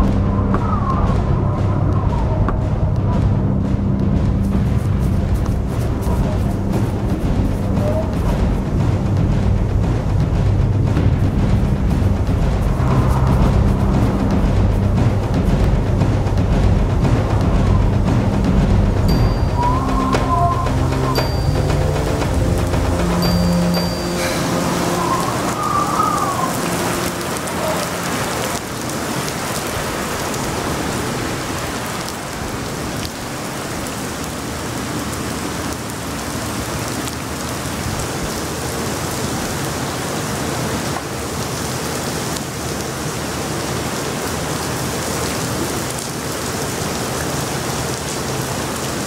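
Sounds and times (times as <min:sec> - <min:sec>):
music: 0:00.0 - 0:28.8
steady rain falling: 0:00.0 - 0:49.0.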